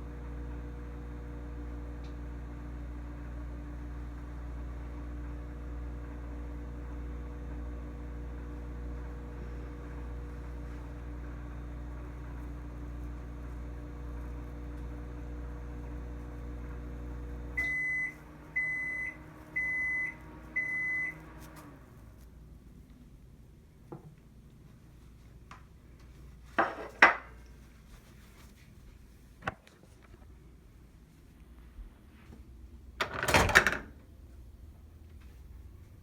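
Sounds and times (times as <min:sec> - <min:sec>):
microwave oven humming: 0:00.0 - 0:22.7
microwave beeps: 0:17.4 - 0:21.3.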